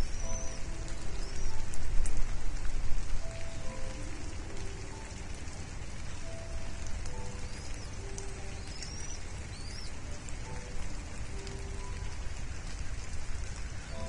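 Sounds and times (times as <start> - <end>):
high bird chirps: 0.0 - 1.7, 7.3 - 10.0
background music held notes: 0.0 - 14.0
steady rain hiss: 0.0 - 14.0.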